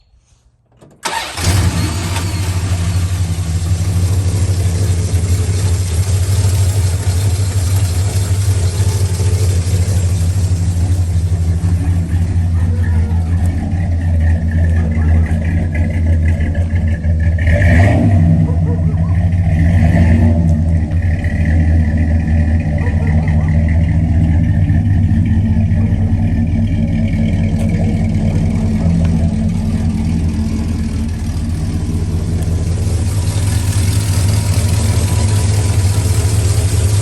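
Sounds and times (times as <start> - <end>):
pickup engine starting and idling: 0.7 - 37.0.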